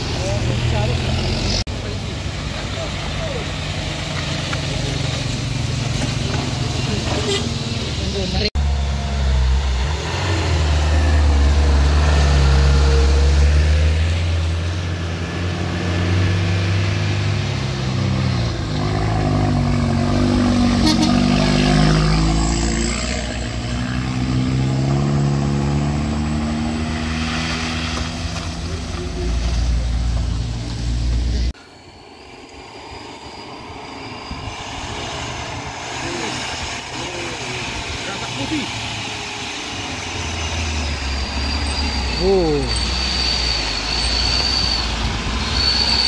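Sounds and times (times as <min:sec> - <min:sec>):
vehicle engine revving: 0:00.0 - 0:31.6.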